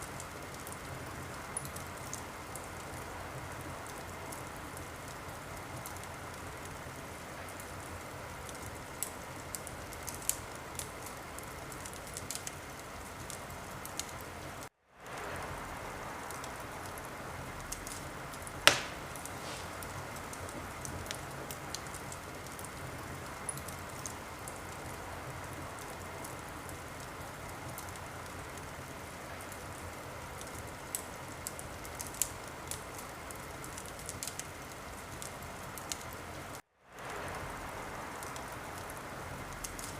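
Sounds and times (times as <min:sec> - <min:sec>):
fire hiss: 0:15.0 - 0:26.3
fire popping sharply: 0:18.6 - 0:21.2.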